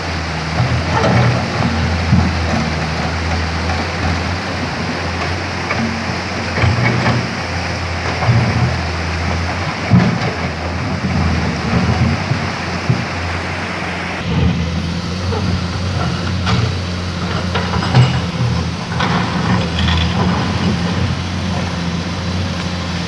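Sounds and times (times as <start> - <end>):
excavator diesel engine humming: 0.0 - 23.0
scattered knocks: 16.3 - 21.5.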